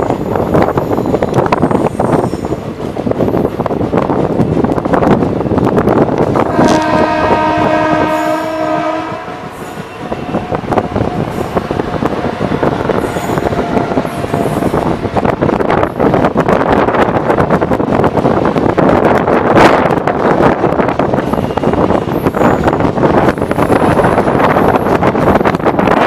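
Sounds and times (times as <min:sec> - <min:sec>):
train horn: 0:06.4 - 0:15.4.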